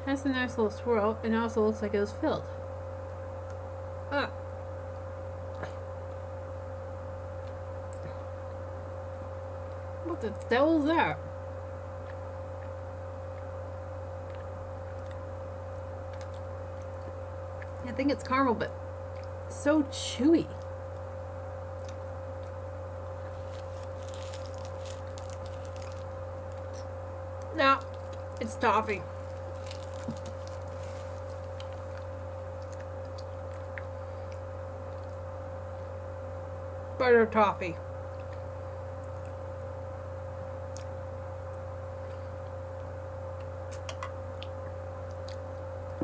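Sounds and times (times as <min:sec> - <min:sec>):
electrical hum: 0:00.0 - 0:46.0
mouth chewing sticky toffee: 0:29.1 - 0:35.9, 0:40.7 - 0:46.0.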